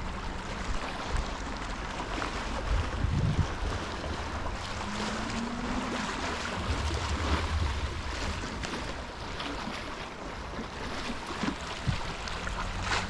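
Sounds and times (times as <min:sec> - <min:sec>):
wind rushing over microphone: 0:02.5 - 0:10.6
faint hum: 0:04.6 - 0:09.7.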